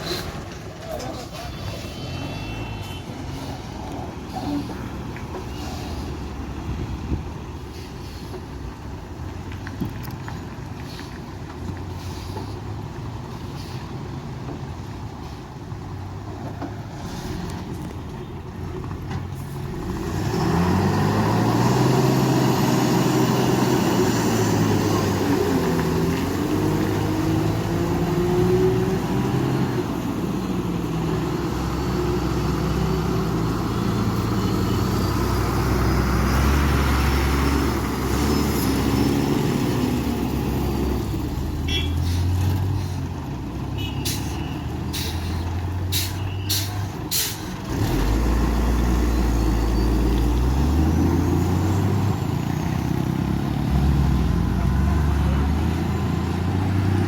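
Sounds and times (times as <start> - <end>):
diesel truck engine revving: 19.3 - 57.0.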